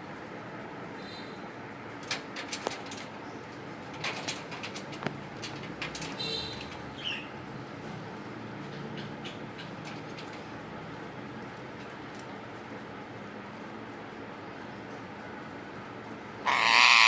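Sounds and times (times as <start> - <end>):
parakeet harsh call: 16.4 - 17.0
parakeet chirp: 16.5 - 17.0.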